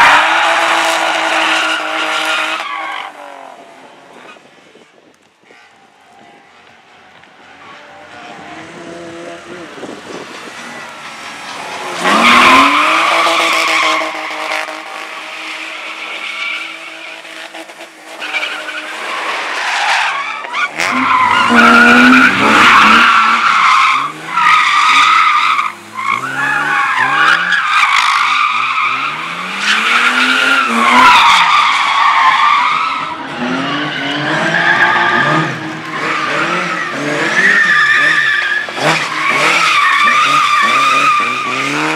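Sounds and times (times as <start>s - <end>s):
car engine revving: 8.0s - 19.5s, 20.6s - 27.6s, 33.3s - 41.9s.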